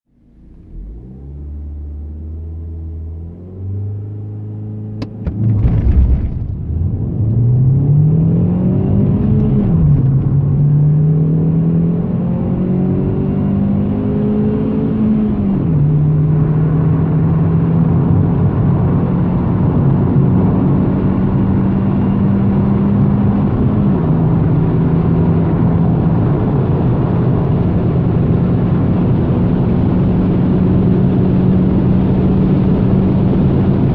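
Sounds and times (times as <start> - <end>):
car engine accelerating hard: 0.2 - 33.9.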